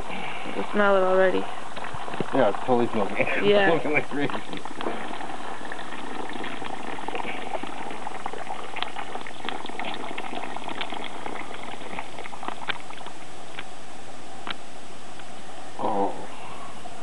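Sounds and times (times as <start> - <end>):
charcoal smoker sizzling and crackling: 0.0 - 13.6.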